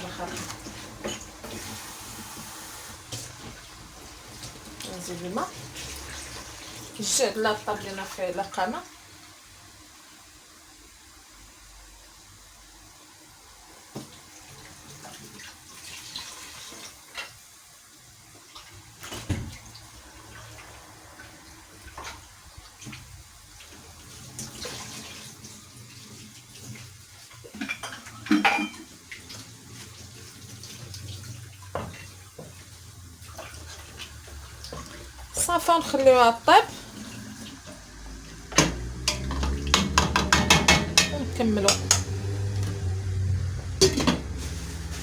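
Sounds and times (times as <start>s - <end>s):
water splashing in pot: 0.0s - 8.8s, 18.4s - 45.0s
pot and utensils clinking: 27.5s - 29.0s, 36.8s - 42.8s, 43.6s - 45.0s
sharp metal clanks: 38.6s - 42.1s.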